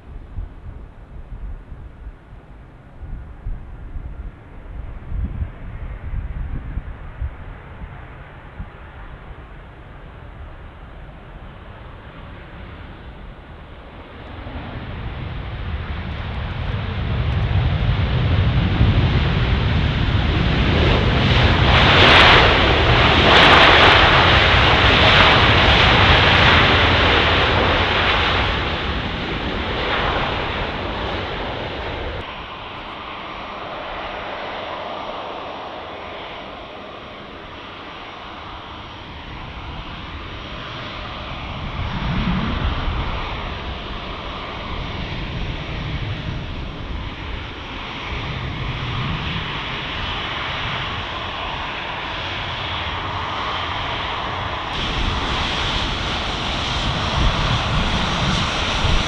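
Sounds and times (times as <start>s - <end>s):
aircraft engine noise: 0.0s - 59.0s
jet engines roaring: 2.2s - 59.0s.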